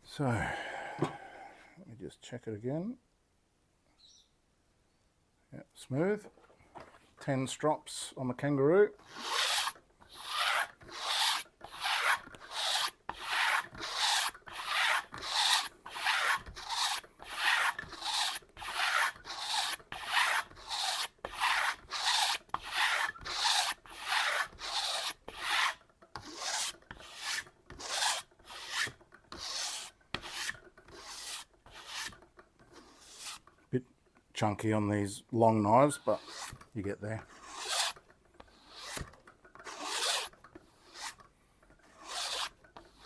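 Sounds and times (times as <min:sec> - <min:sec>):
knife blade stropping on leather: 0:09.0 - 0:33.5, 0:35.9 - 0:41.2, 0:41.8 - 0:43.0.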